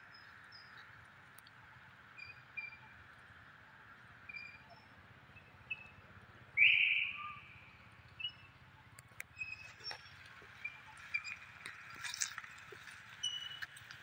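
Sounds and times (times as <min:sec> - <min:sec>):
loud bird call: 0:06.6 - 0:07.6
high bird chirps: 0:06.6 - 0:08.6, 0:13.1 - 0:13.9.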